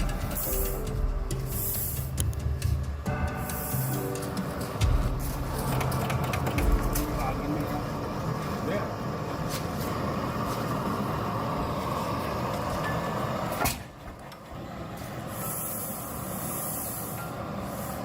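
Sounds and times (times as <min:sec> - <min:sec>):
high hiss: 0:00.0 - 0:06.0, 0:15.2 - 0:18.0
large engine running: 0:00.0 - 0:13.6.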